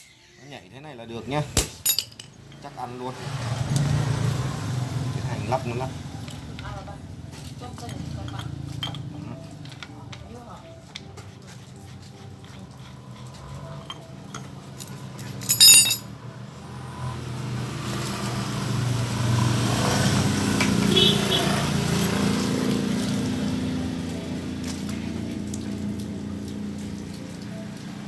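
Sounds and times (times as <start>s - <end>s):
metal parts and tools clinking: 1.7s - 2.7s, 7.8s - 10.0s, 13.8s - 16.1s
passing vehicle engine: 2.4s - 10.8s, 11.4s - 28.0s.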